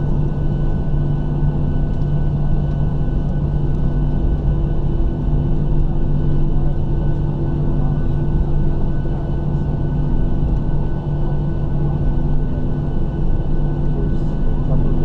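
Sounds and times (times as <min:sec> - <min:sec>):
aircraft cabin low rumble: 0:00.0 - 0:15.0
engines and air systems humming: 0:06.6 - 0:15.0.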